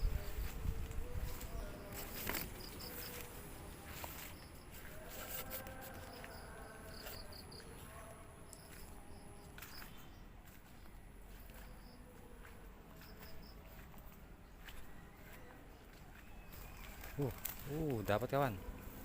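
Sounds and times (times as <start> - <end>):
insects chirping: 1.1 - 12.1.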